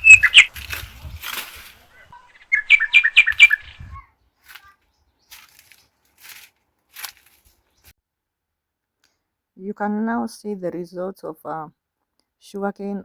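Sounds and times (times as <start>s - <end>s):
bird chirping: 0.0s - 1.2s, 1.8s - 6.1s.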